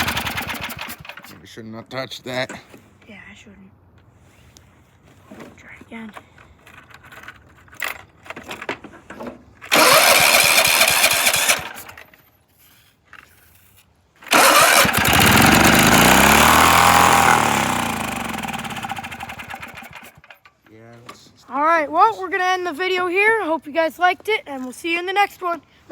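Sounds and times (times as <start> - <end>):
lawn mower engine cranking: 0.0 - 1.4, 6.5 - 20.8.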